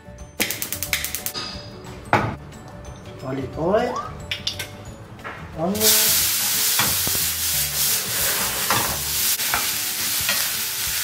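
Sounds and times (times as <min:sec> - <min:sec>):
onion sizzling in oil: 0:05.8 - 0:11.0.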